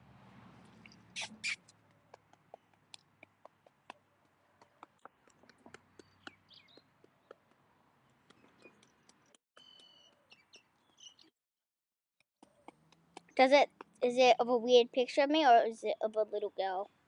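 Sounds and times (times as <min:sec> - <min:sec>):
faint outdoor ambience: 0:00.0 - 0:11.3, 0:12.4 - 0:17.0
faint bird chirps: 0:09.6 - 0:11.3.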